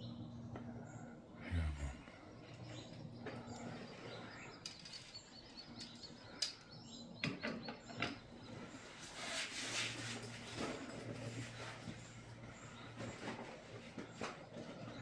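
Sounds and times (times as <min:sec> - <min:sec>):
low steady hum: 0:00.0 - 0:09.1
small birds chirping: 0:00.0 - 0:10.0, 0:10.6 - 0:15.0.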